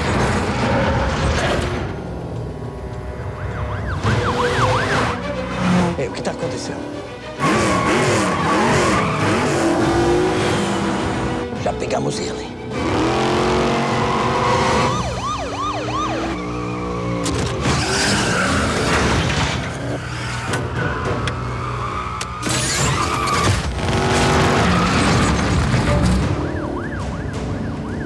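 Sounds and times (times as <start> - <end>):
police sirens wailing: 2.9 - 6.0, 13.5 - 19.1, 19.8 - 28.0
cars crashing: 17.2 - 26.8.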